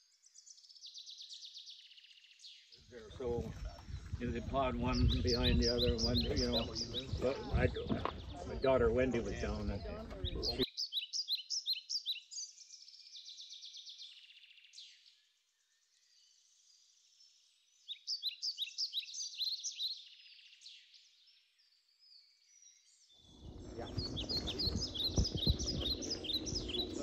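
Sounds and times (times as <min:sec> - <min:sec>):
small birds chirping: 0:00.0 - 0:27.0
rushing noise with low rumble: 0:23.4 - 0:27.0.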